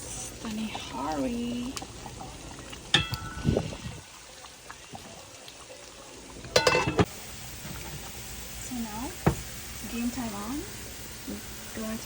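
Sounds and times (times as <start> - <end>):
low steady liquid sound: 0.0 - 12.0
metal cookware clinking: 2.9 - 3.6, 6.4 - 8.0
dull knock: 9.2 - 9.5.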